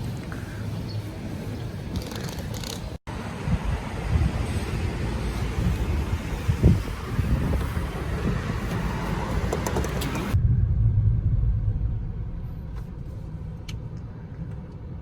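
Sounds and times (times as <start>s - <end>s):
wind buffeting microphone: 0.1s - 15.0s
low steady rumble: 3.1s - 15.0s.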